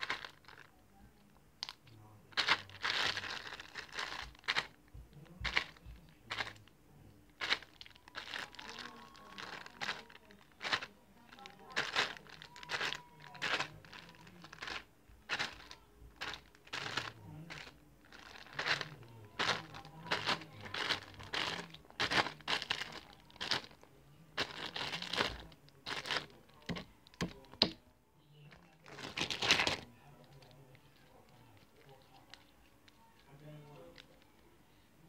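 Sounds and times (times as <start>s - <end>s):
plastic bag crinkling: 0.0s - 0.7s, 1.6s - 4.8s, 5.4s - 6.7s, 7.4s - 27.7s, 28.5s - 31.0s.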